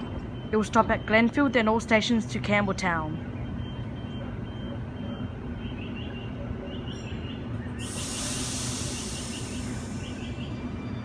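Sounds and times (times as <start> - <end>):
electric train rumbling: 0.0 - 11.0
burst of hissing air: 7.8 - 10.2.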